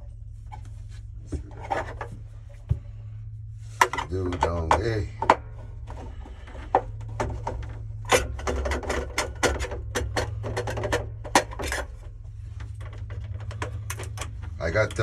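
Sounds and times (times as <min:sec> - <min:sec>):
steady low hum: 0:00.0 - 0:15.0
clicks and knocks of tools: 0:03.8 - 0:15.0.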